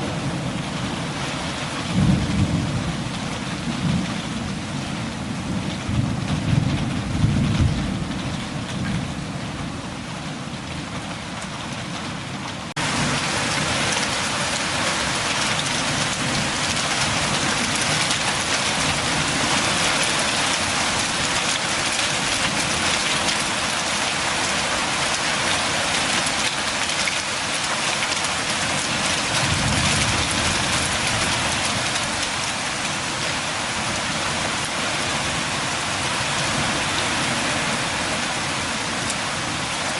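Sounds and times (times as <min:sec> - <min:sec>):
low rumble of thunder: 0:00.0 - 0:11.1, 0:28.6 - 0:32.4
steady rain: 0:00.0 - 0:39.9.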